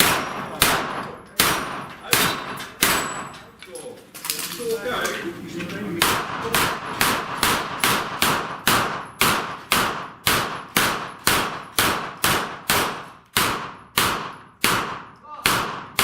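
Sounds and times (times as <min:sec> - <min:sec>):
rapid gunshots with echo: 0:00.0 - 0:03.2, 0:06.0 - 0:16.0.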